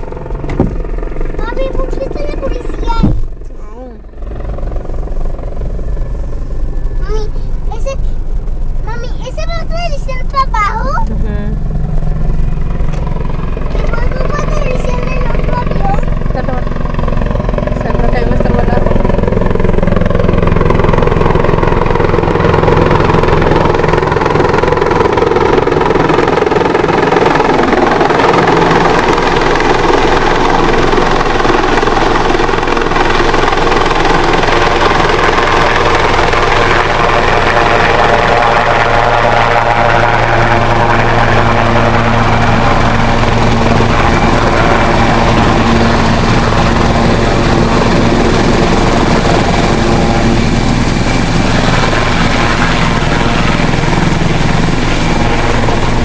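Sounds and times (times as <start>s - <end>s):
helicopter turbine and rotor: 0.0s - 56.0s.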